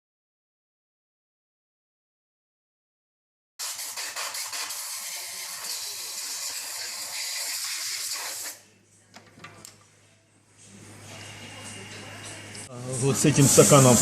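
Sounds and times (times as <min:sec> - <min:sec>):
loud steady hiss: 0:12.8 - 0:14.0.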